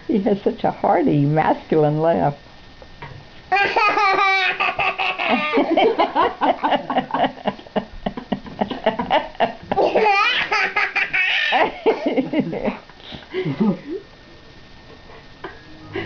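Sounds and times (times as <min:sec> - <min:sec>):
baby laughing: 0:03.5 - 0:05.8, 0:09.1 - 0:12.0.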